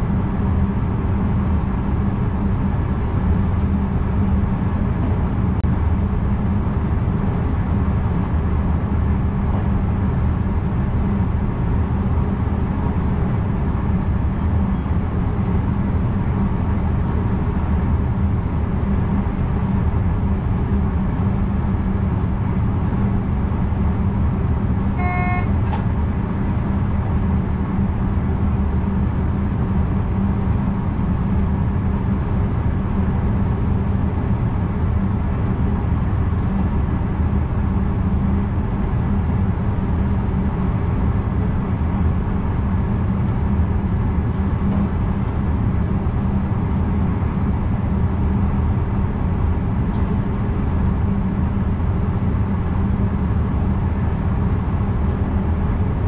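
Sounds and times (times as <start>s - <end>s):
electric train rumbling: 0.0s - 56.0s
short high-pitched tone: 25.0s - 25.6s.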